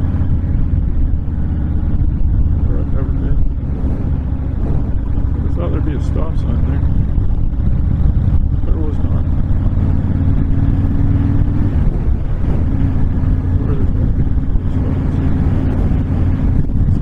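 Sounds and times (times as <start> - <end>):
motorcycle engine running: 0.0 - 17.0
wind buffeting the microphone: 0.0 - 17.0.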